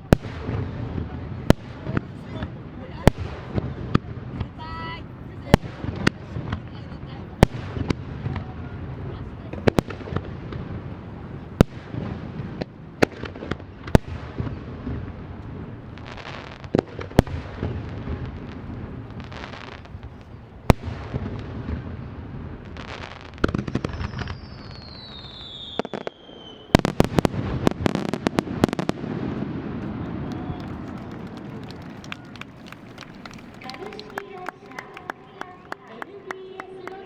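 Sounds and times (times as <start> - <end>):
barrage of firework bangs: 0.0 - 4.6, 7.3 - 33.7
crackling firework stars: 0.0 - 37.0
falling firework whistle: 23.8 - 27.2, 29.8 - 33.7.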